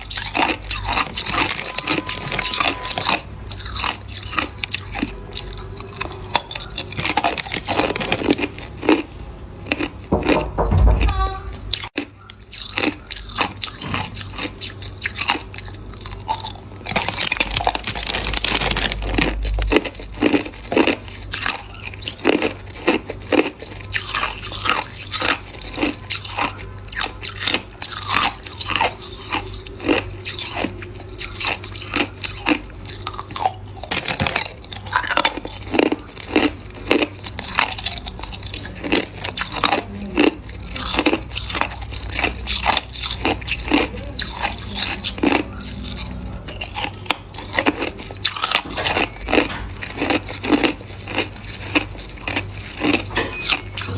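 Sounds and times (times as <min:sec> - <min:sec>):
ice crunching in mouth: 0:12.4 - 0:53.9.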